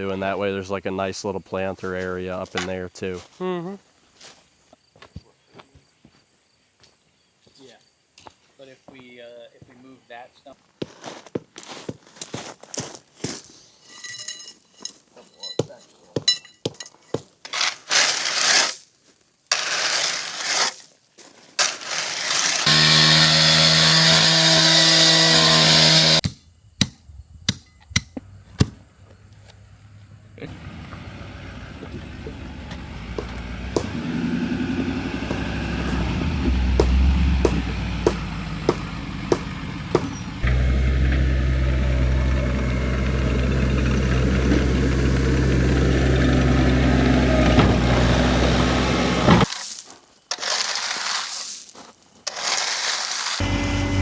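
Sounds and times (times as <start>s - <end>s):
power tool running with high hiss: 22.4s - 26.2s, 53.4s - 54.0s
engine running at low revs: 28.2s - 49.5s, 53.4s - 54.0s
sharp knocks: 33.1s - 34.1s, 35.2s - 40.6s.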